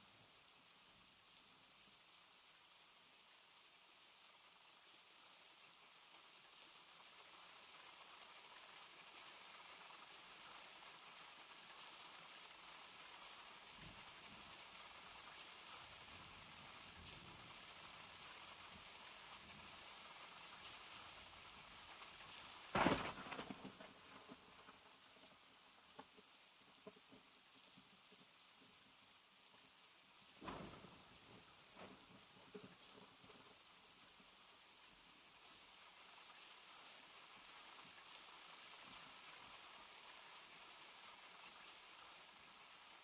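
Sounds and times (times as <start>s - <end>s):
steady rain falling: 0.0s - 43.0s
loud crack: 22.7s - 24.0s.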